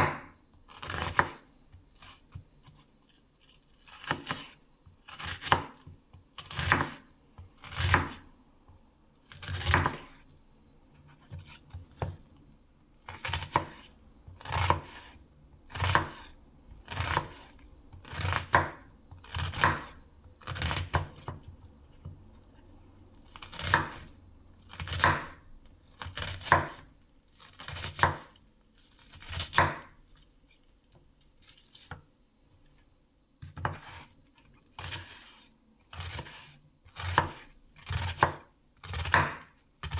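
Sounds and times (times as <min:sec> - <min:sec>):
knife cutting on a cutting board: 0:03.4 - 0:07.0, 0:07.6 - 0:08.2, 0:09.3 - 0:10.2, 0:11.0 - 0:12.2, 0:13.1 - 0:22.0, 0:23.3 - 0:24.1, 0:24.7 - 0:29.9, 0:33.4 - 0:39.9.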